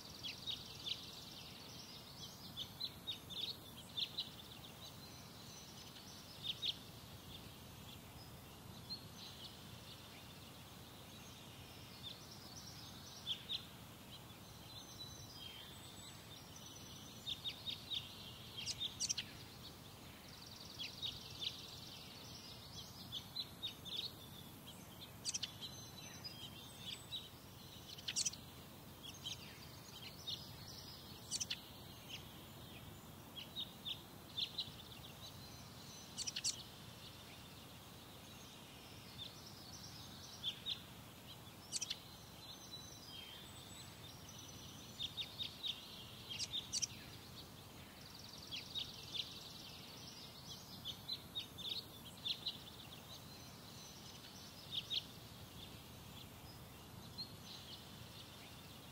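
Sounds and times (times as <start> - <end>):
birds chirping: 0.0 - 58.9
faint low background noise: 0.0 - 58.9.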